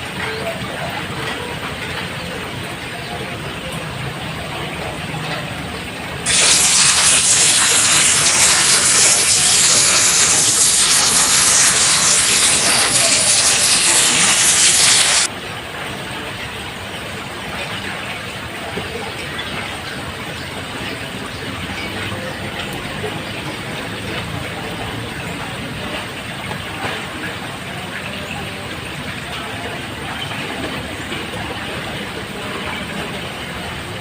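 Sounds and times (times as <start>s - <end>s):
rain on a roof: 0.0s - 34.0s
loud even hiss: 6.2s - 15.3s.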